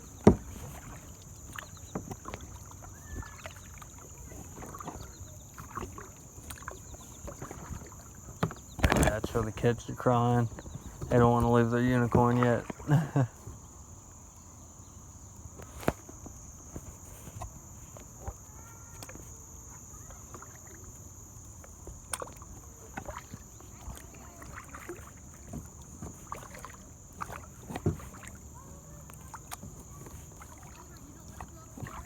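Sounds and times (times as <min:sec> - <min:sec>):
high-pitched insect chorus: 0:00.0 - 0:32.0
water sounds: 0:00.0 - 0:32.0
knocks against kayak hull: 0:00.2 - 0:02.5, 0:07.2 - 0:09.6.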